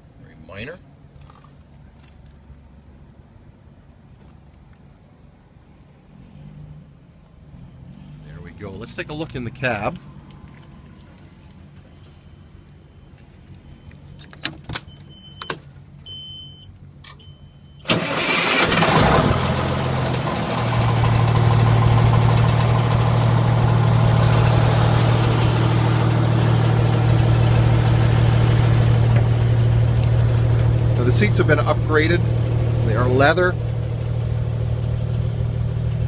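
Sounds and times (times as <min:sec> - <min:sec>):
diesel engine cranking and idling: 0:07.9 - 0:36.0.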